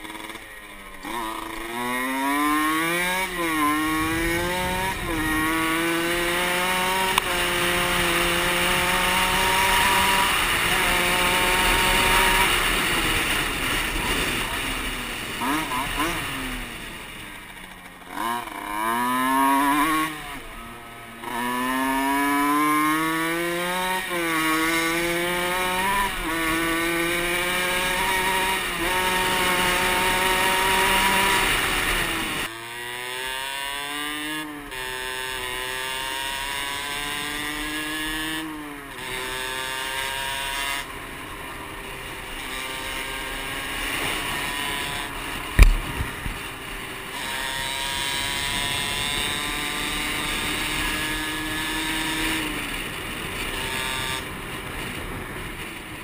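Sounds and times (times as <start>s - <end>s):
motorcycle engine accelerating: 0.0s - 56.0s
sharp thump: 45.6s - 46.5s.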